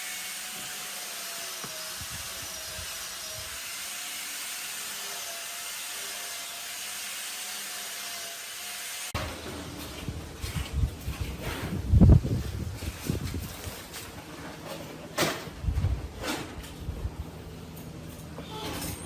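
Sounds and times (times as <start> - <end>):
woodworking power tool running: 0.0 - 9.4.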